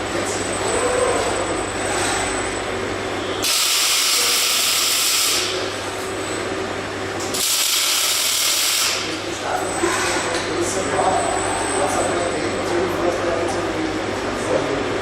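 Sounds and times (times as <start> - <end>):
low machine hum: 0.0 - 7.5, 8.9 - 15.0
welding hissing bursts: 3.4 - 5.5, 7.4 - 9.0.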